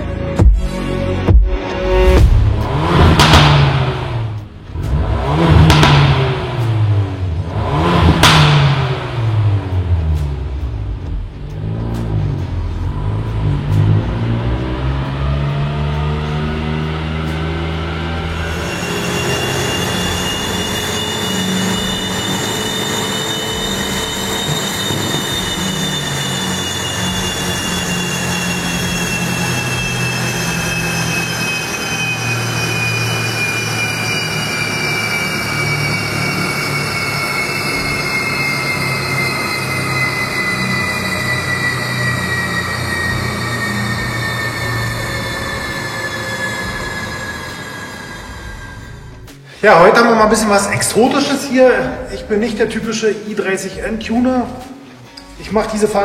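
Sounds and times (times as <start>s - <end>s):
dynamometer rollers whining: 18.2s - 49.3s.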